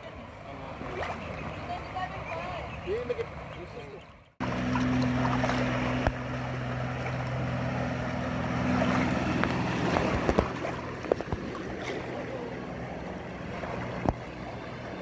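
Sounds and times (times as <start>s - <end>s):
motorboat engine running: 0.0s - 15.0s
water rushing past: 4.4s - 15.0s.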